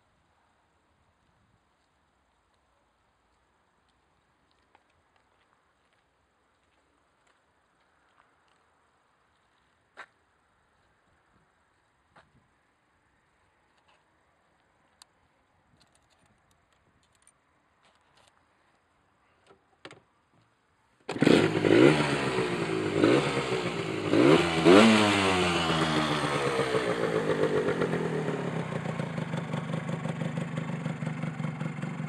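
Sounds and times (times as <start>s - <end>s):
motorcycle engine revving and idling: 21.1s - 32.0s.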